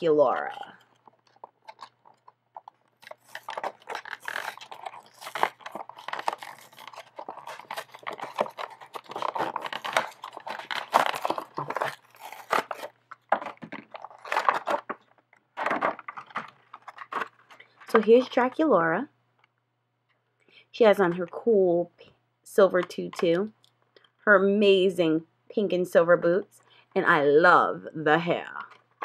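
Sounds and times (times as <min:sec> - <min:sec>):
packaging crinkling and tearing: 0:00.0 - 0:18.0.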